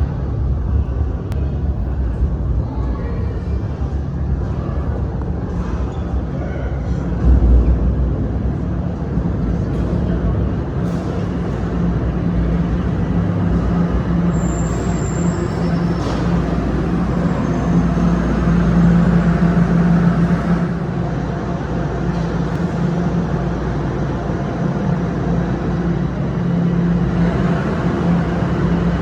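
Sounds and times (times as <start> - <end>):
subway train rumbling: 0.0 - 29.0
high squeal: 13.3 - 20.9.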